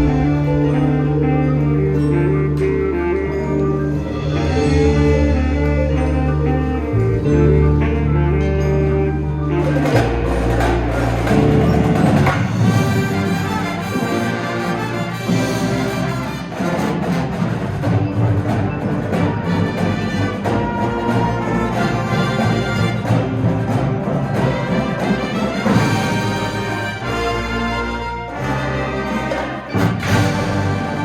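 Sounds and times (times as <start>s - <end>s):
percussion: 0.0s - 31.0s
wind band playing: 0.0s - 31.0s.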